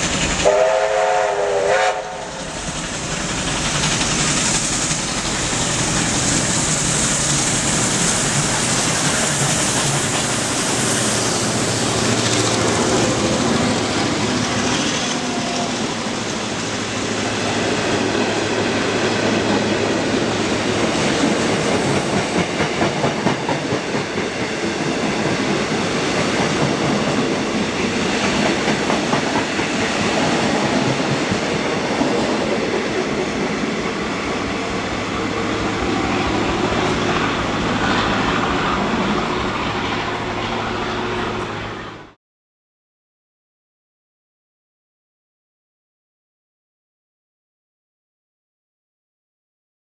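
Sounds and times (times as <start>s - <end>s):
steam hiss: 0.0s - 39.4s
steam train rumbling and rattling: 0.0s - 42.2s.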